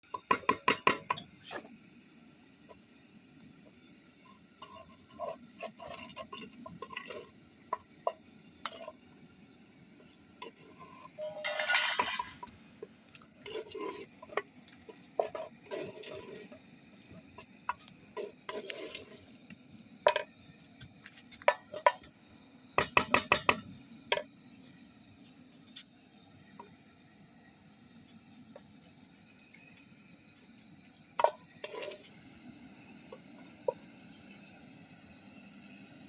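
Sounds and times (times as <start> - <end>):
utensils and dishes clinking: 10.4 - 12.6.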